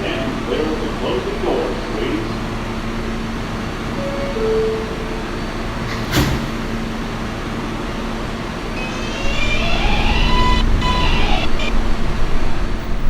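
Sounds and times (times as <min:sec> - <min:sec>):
subway door chime: 0:03.2 - 0:13.0
sliding doors shutting thud: 0:05.8 - 0:06.7
train traction motor whine: 0:06.6 - 0:13.0.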